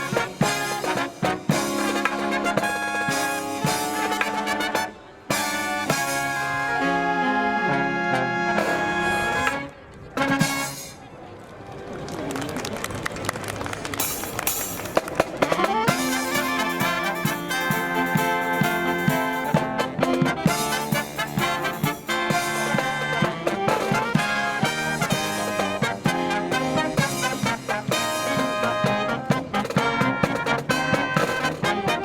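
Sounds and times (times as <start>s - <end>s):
drum beats: 0.0s - 6.4s, 14.0s - 32.0s
marching brass band playing: 0.0s - 11.0s, 14.0s - 32.0s.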